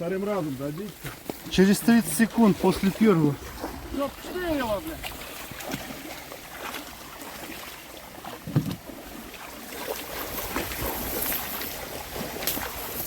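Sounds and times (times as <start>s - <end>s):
water lapping: 0.0s - 13.0s
wind on microphone: 2.5s - 6.2s, 10.0s - 13.0s.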